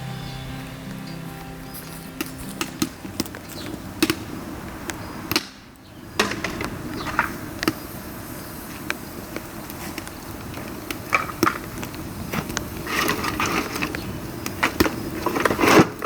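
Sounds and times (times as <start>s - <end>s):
steady hiss: 0.0s - 16.0s
bamboo crackling and popping: 0.6s - 16.0s.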